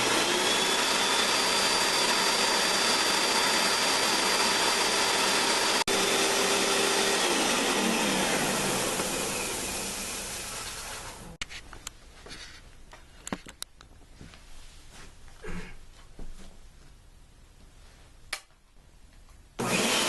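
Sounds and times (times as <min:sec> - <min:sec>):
carpet shampooer motor whine: 0:00.0 - 0:11.4, 0:19.6 - 0:20.0.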